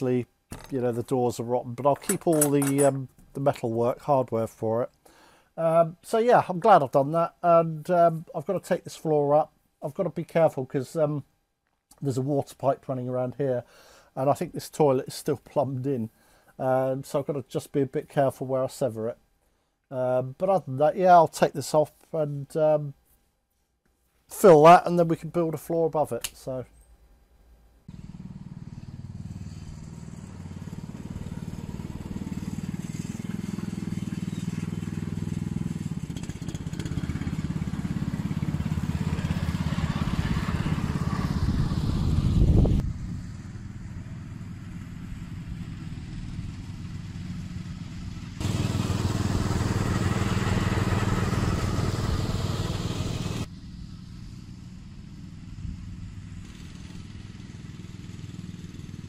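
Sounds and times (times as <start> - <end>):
machinery humming: 48.4 - 53.5.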